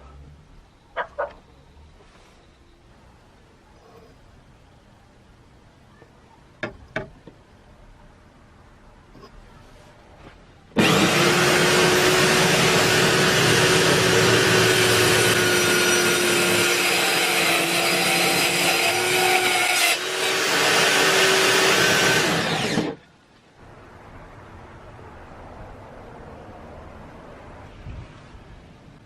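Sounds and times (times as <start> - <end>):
electric drill whining and grinding: 10.8 - 23.0.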